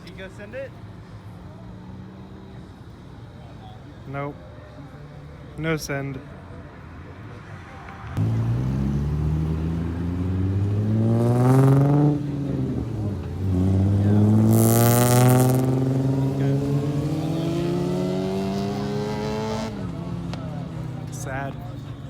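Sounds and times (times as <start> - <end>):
car engine accelerating hard: 8.2 - 21.6.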